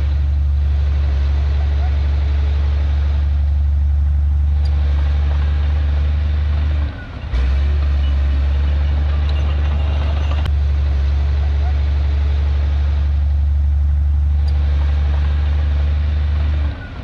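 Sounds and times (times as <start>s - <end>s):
heavy diesel engine droning: 0.0s - 17.0s.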